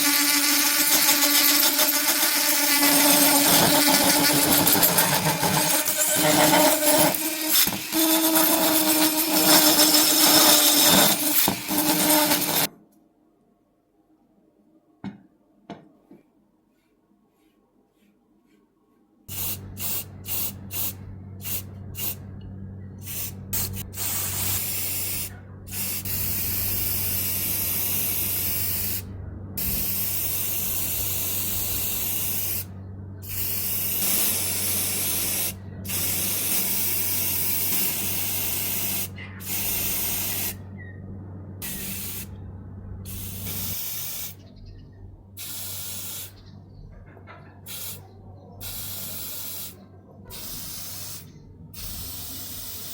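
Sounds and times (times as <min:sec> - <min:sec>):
paint spraying hiss: 0:19.3 - 0:22.2, 0:23.1 - 0:29.0, 0:29.6 - 0:40.6, 0:41.6 - 0:42.3, 0:43.1 - 0:44.4, 0:45.4 - 0:46.4, 0:47.7 - 0:48.0, 0:48.6 - 0:52.9
low motor hum: 0:19.3 - 0:45.4, 0:46.4 - 0:49.0, 0:49.8 - 0:52.9.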